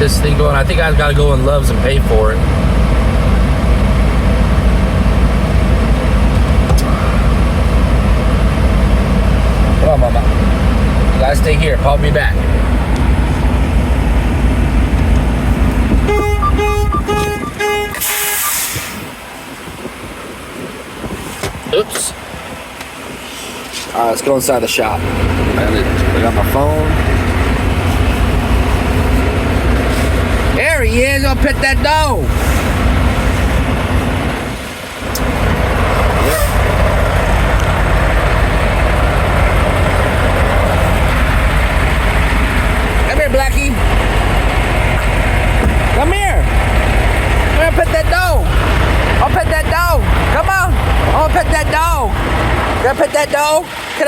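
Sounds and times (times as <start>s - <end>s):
truck engine idling: 0.0s - 54.0s
warning buzzer beeps: 16.1s - 18.7s
air hiss: 18.0s - 19.2s.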